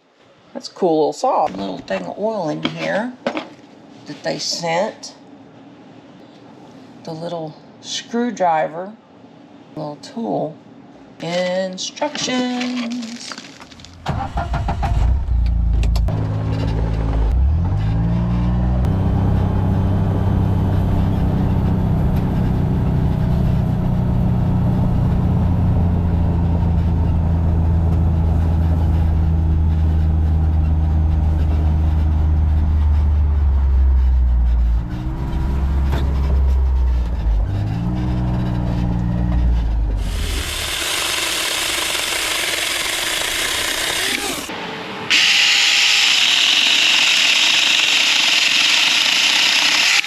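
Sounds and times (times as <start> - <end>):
vehicle engine revving: 16.1 - 44.5
bright rough noise: 40.0 - 50.0.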